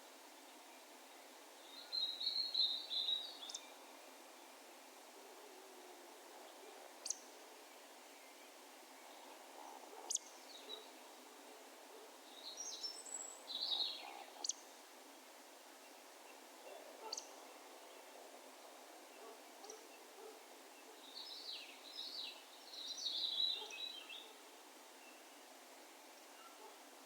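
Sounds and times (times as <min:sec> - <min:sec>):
faint steady hiss: 0:00.0 - 0:27.0.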